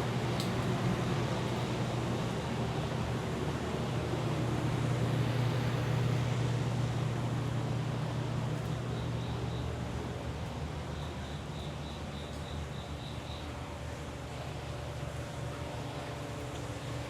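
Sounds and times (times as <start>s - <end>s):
low machine hum: 0.0s - 17.0s
faint insect chirping: 11.0s - 13.6s.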